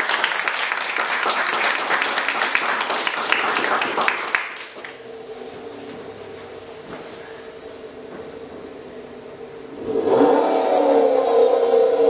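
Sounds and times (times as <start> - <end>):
audience clapping: 0.0 - 5.1
held low tones: 4.8 - 12.0.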